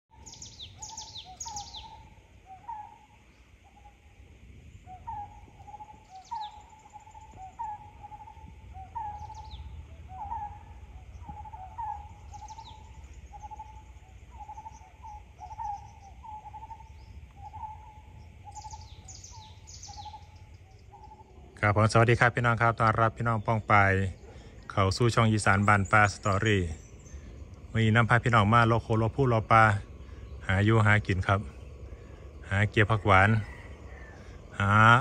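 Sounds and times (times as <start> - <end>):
bird high falling call: 0.1 - 4.0, 4.8 - 21.6.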